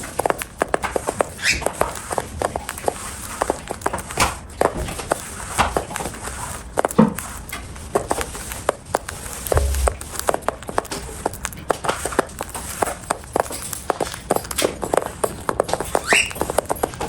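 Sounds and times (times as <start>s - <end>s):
soft low bump: 9.5s - 10.3s.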